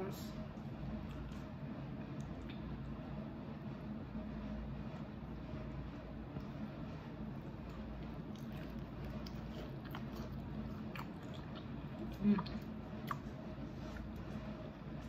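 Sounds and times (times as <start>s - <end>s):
person chewing: 1.0s - 1.5s, 7.6s - 15.0s
low voice hum: 11.9s - 12.8s.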